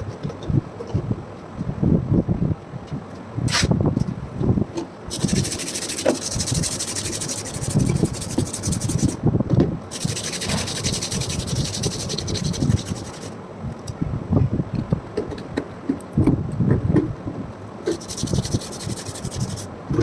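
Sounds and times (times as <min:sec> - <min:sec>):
sanding abrasive rubbing: 0:05.1 - 0:09.2, 0:09.9 - 0:13.4, 0:17.9 - 0:19.7.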